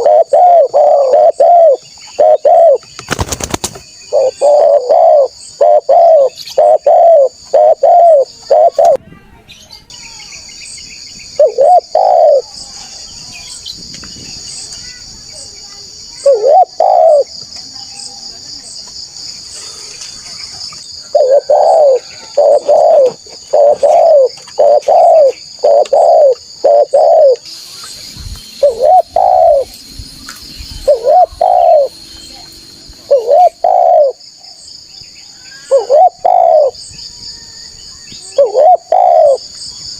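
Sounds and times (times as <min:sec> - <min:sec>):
dove cooing: 0:00.0 - 0:02.8, 0:04.1 - 0:09.0, 0:11.4 - 0:12.5, 0:16.2 - 0:17.3, 0:21.0 - 0:27.4, 0:28.6 - 0:29.7, 0:30.8 - 0:32.0, 0:33.0 - 0:34.2, 0:35.6 - 0:36.8, 0:38.3 - 0:39.5.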